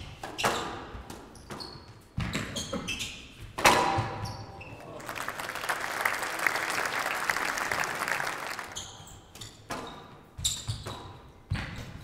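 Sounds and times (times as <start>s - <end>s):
squash ball bouncing off walls: 0.2s - 2.9s
shoe squeaks on court floor: 0.4s - 3.4s, 4.0s - 4.9s, 8.7s - 11.8s
audience applauding: 4.8s - 8.9s.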